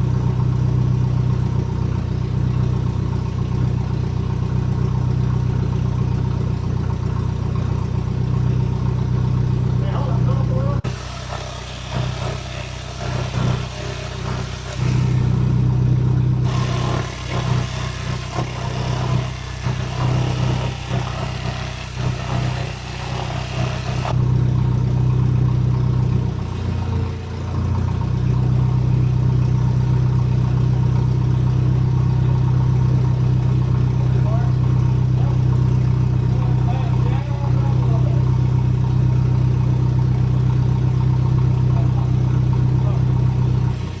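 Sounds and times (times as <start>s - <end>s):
forklift engine running: 0.0s - 44.0s
hiss: 10.9s - 15.4s, 16.5s - 24.1s.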